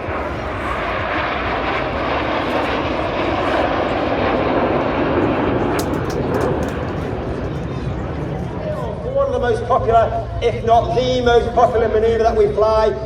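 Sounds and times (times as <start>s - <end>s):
jet engines flying past: 0.0s - 13.0s.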